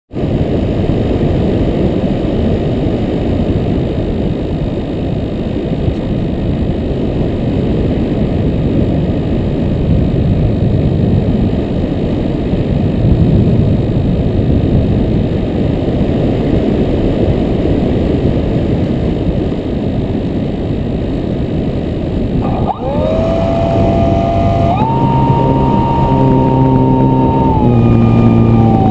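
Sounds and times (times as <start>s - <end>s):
quadcopter motors whining: 22.4s - 28.9s
wind buffeting microphone: 22.4s - 28.9s.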